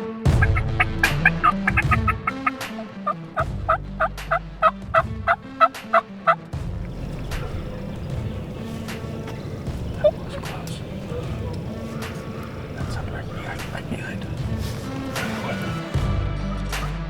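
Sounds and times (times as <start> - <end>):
wild turkey yelping: 0.4 - 15.9
low hum: 6.6 - 16.0.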